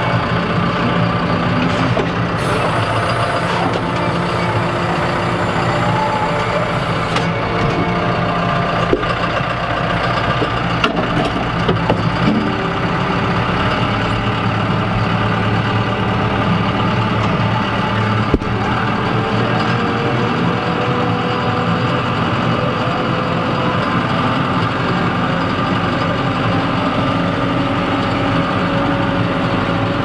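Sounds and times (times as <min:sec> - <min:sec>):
short clunks and knocks: 0:00.0 - 0:19.2
tractor engine running: 0:00.0 - 0:30.0.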